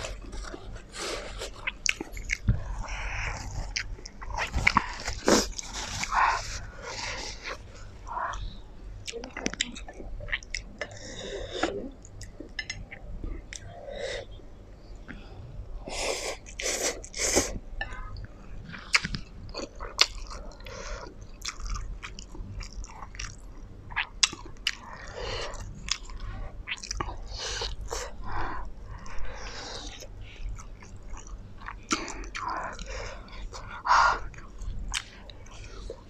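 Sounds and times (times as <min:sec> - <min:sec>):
chewing and wet mouth sounds: 0:00.0 - 0:13.8, 0:16.3 - 0:36.0
mouth smacks and clicks: 0:18.9 - 0:20.3.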